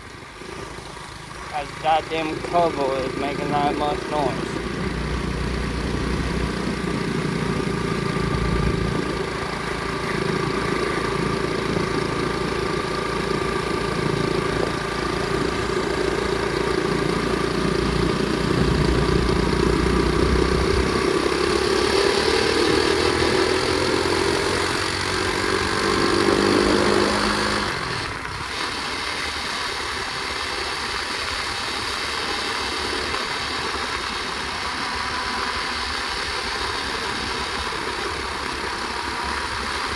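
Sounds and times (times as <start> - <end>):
motorbike engine revving: 0.2 - 39.9.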